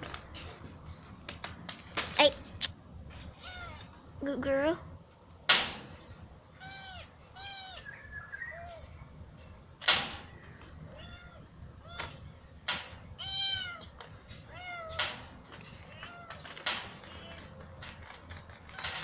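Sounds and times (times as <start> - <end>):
kitten meowing: 3.4 - 3.9, 6.6 - 7.9, 10.9 - 12.2, 13.2 - 13.9.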